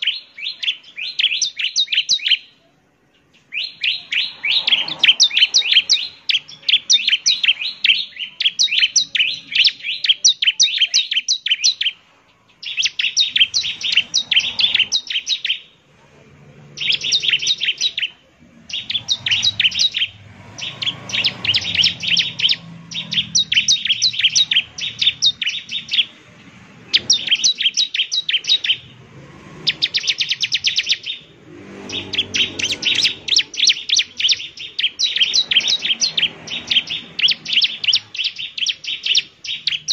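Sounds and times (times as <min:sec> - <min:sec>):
bird singing sharp chirps: 0:00.0 - 0:15.8, 0:16.6 - 0:39.9.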